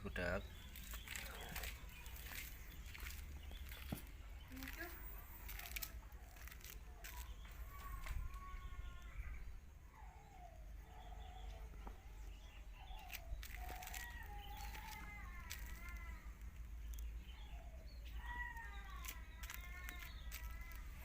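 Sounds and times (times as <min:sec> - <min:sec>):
cats yowling: 0:12.8 - 0:16.4, 0:17.4 - 0:21.0.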